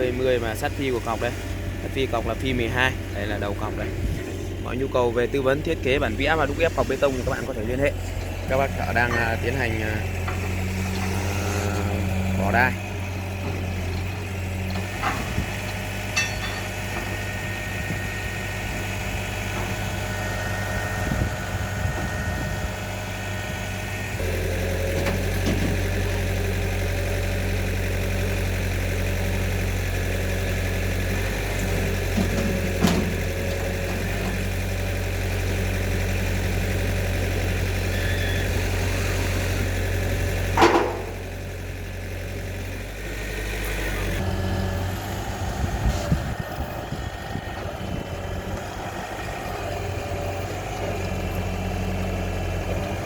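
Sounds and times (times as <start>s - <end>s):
pile-pressing rig engine running: 0.0s - 53.0s
sharp metal clanks: 16.1s - 16.9s.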